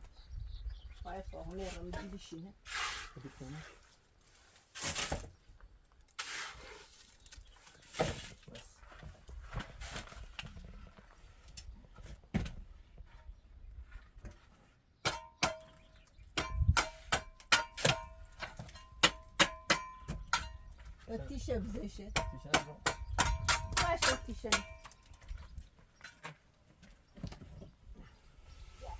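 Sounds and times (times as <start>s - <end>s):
building work knocks and scrapes: 1.6s - 5.5s, 6.1s - 21.1s
ringing metal strikes: 15.1s - 20.7s.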